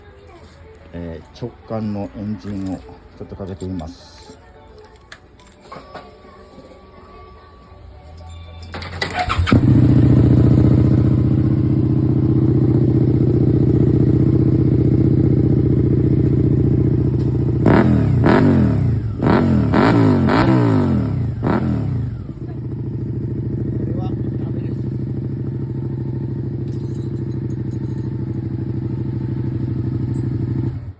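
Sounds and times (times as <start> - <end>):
starter motor cranking: 8.7 - 10.0
motorcycle engine idling: 8.9 - 30.9
engine revving: 9.0 - 30.9.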